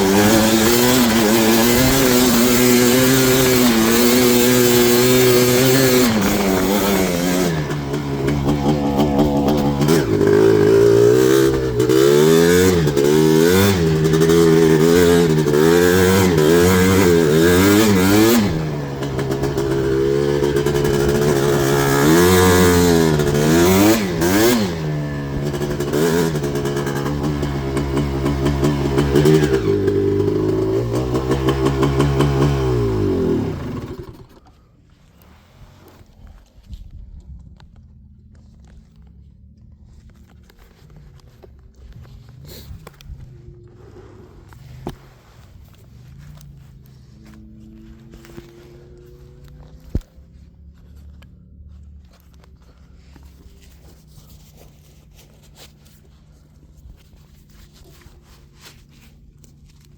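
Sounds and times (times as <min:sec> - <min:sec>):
two-stroke engine revving: 0:00.0 - 0:34.6, 0:43.6 - 0:50.9.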